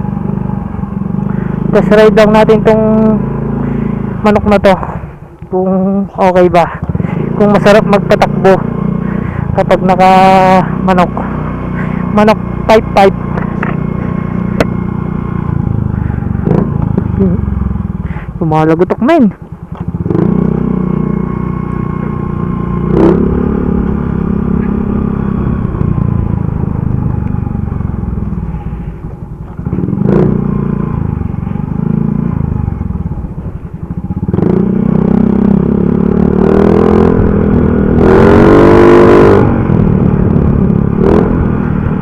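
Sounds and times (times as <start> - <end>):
motorcycle engine revving: 0.0 - 42.0
exhaust cracks: 22.0 - 42.0.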